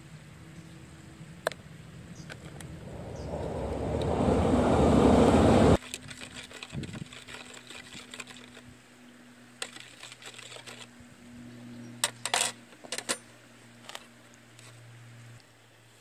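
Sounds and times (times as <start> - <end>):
faint low hum: 0.1 - 5.8
loud rushing noise: 2.4 - 5.8.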